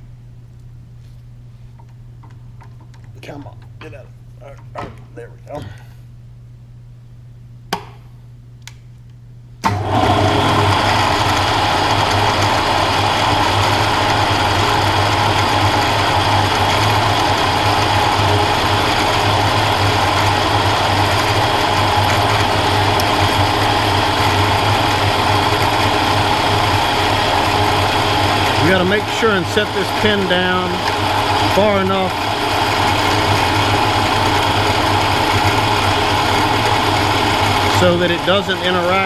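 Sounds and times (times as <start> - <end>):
milling machine spindle humming: 9.6 - 39.0.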